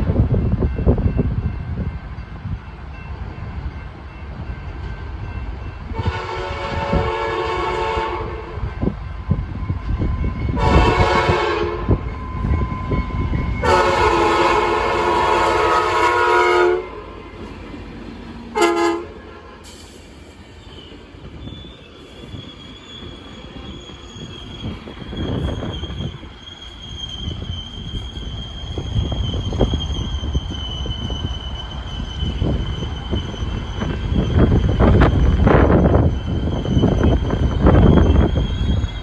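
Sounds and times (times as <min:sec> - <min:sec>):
train rumbling: 0:00.0 - 0:39.0
train chime air horn: 0:05.9 - 0:08.6, 0:10.5 - 0:17.1, 0:18.5 - 0:19.9
high-pitched brake squeal: 0:18.6 - 0:39.0.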